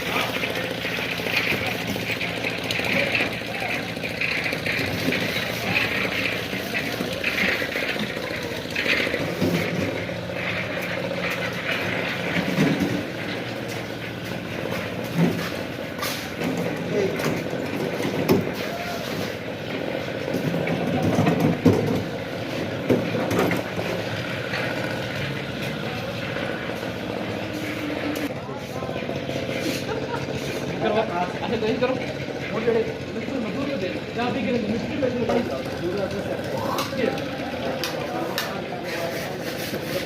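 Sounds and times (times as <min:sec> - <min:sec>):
knocks and clatter: 0:00.0 - 0:28.3
concrete mixer running: 0:00.0 - 0:40.0.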